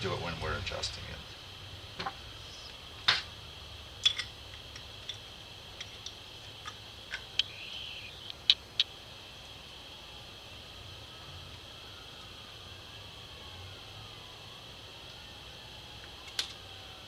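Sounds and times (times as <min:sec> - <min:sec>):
high-pitched background hum: 0:00.0 - 0:11.2.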